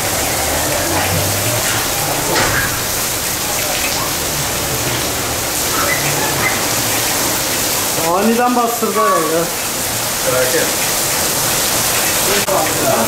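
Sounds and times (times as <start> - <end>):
heavy rain hissing: 0.0 - 13.0.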